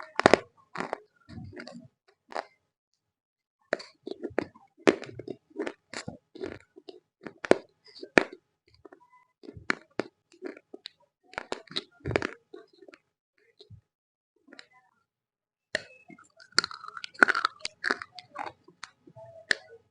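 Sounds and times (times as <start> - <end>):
crunchy chewing: 3.8 - 8.4, 9.4 - 13.0, 16.1 - 19.6.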